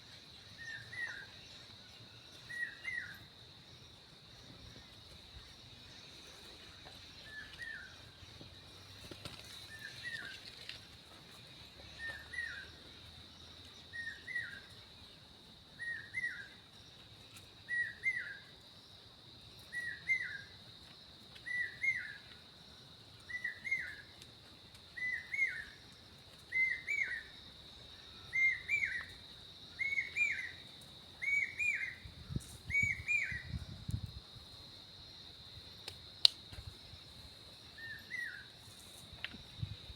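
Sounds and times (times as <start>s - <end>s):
bird chirping: 28.0s - 30.6s, 31.2s - 33.8s
faint high bird chirps: 28.0s - 30.6s, 31.2s - 33.8s.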